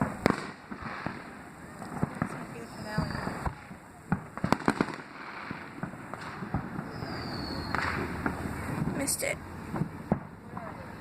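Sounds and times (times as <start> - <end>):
firework high whistle: 0.0 - 3.8, 4.4 - 8.8
fireworks bangs: 0.0 - 11.0
fireworks cracks and pops: 0.0 - 11.0.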